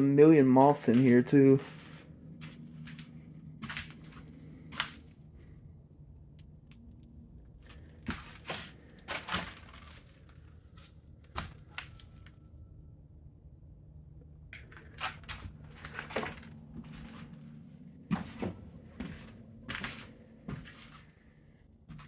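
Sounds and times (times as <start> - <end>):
crackles and crunches: 6.4 - 12.4.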